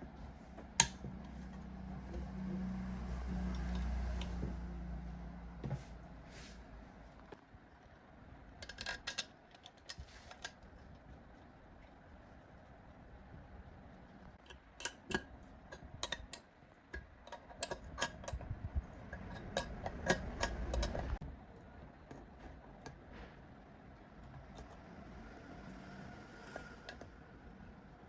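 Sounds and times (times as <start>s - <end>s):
hand tools clicking and tapping: 17.0s - 21.2s.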